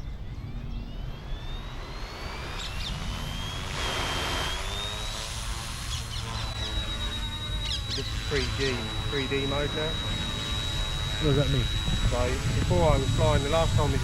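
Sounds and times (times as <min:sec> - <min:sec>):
rc helicopter rotor whine: 0:00.0 - 0:14.0
wind rumble on microphone: 0:07.9 - 0:14.0.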